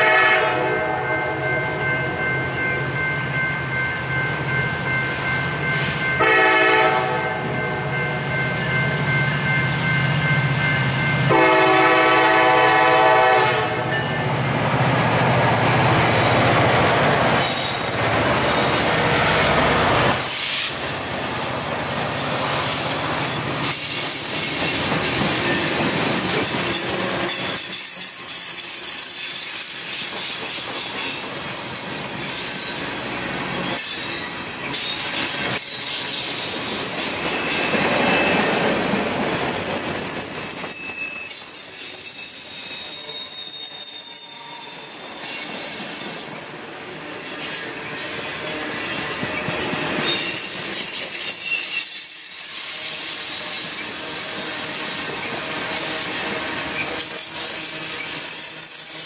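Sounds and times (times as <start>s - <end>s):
train wheels rumbling on rails: 0.0s - 59.0s
high-pitched wheel squeal: 25.3s - 31.3s, 33.6s - 59.0s.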